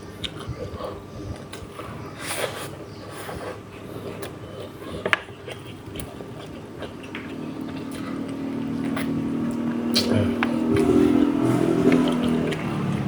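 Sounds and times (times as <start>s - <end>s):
chewing and sucking on bones: 0.0s - 13.0s
vehicle engine hum: 6.6s - 13.0s.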